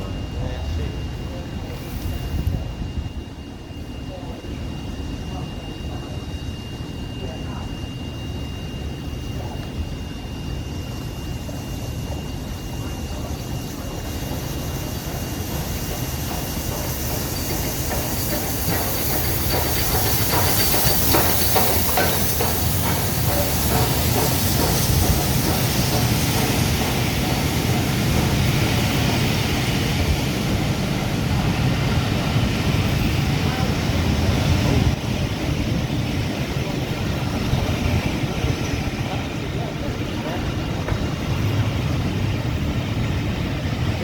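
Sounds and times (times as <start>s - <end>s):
steam train approaching: 0.0s - 44.0s
hiss of steam: 0.1s - 3.0s, 3.7s - 44.0s
wheels clattering over rail joints: 13.3s - 29.0s.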